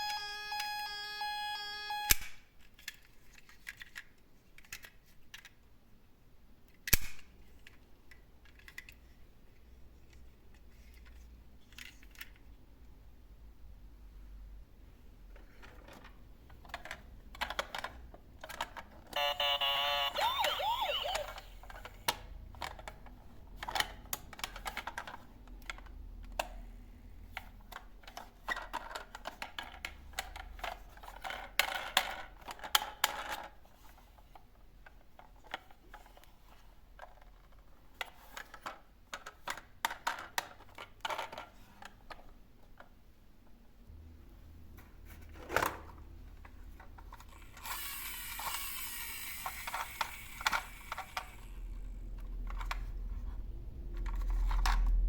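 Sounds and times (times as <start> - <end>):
toy electronic warbling tone: 0.0 - 2.2, 19.2 - 21.6
plastic toy vehicles clicking and rattling: 2.1 - 5.7, 6.6 - 12.6, 15.4 - 43.0, 45.3 - 55.0.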